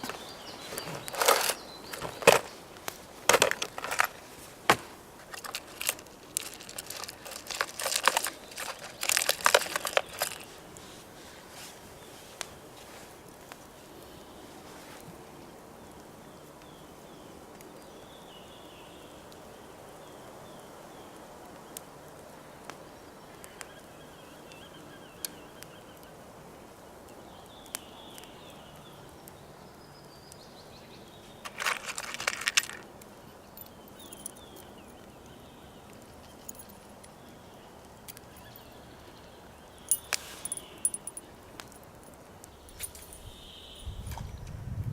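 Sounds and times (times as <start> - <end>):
faint birdsong: 0.0 - 4.4, 5.0 - 44.9
clattering: 31.5 - 32.8.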